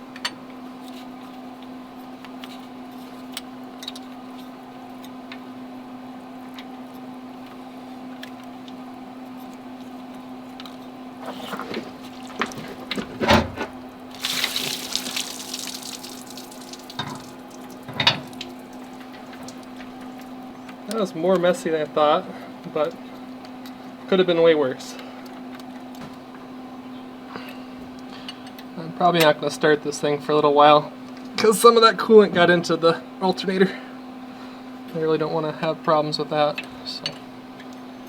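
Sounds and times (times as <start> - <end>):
coolant splashing out of engine: 11.9 - 13.1, 14.1 - 19.8.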